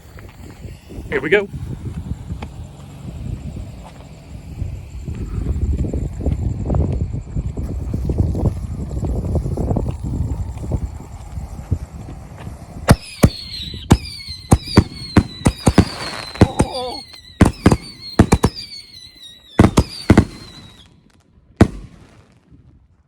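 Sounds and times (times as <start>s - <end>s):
high whistle gliding down: 0.0s - 22.2s
firework shells banging: 12.8s - 22.3s.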